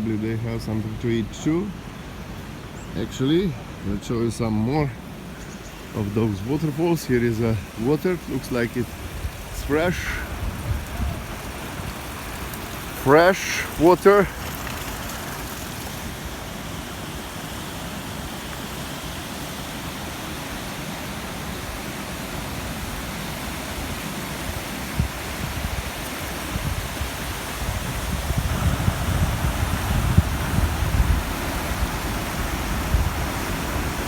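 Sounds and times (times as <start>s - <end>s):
waterfall rushing water: 0.0s - 34.0s
low rumbling: 28.2s - 33.3s.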